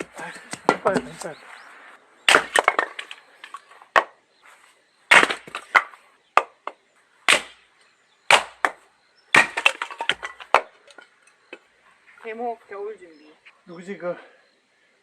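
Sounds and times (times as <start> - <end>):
axe splitting firewood: 0.0 - 1.3, 2.3 - 4.2, 5.1 - 7.6, 8.3 - 11.1.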